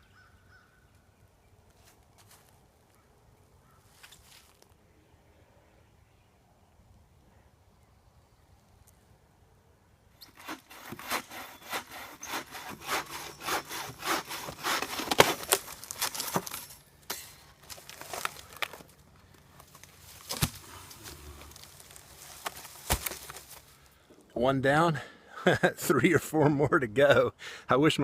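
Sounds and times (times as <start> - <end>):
hand saw cutting wood: 10.2 - 16.8.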